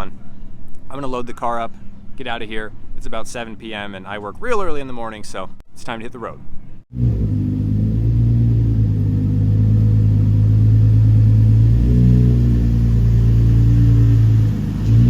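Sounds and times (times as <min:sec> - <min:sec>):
car engine running: 0:06.9 - 0:15.0.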